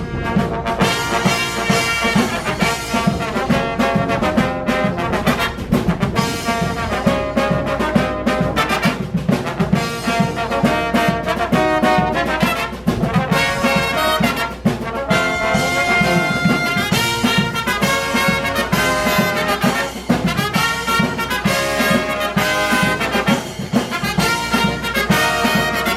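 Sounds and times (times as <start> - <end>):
brass band playing: 0.0 - 25.9.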